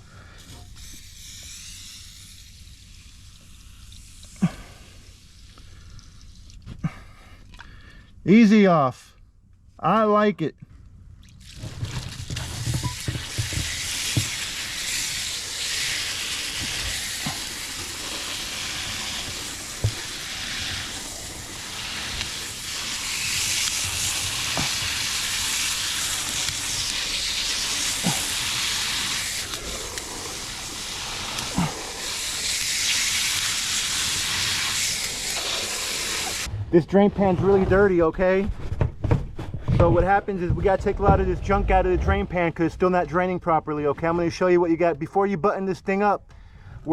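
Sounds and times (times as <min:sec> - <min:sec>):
aerosol spray hissing: 0:00.6 - 0:04.4, 0:13.1 - 0:36.5.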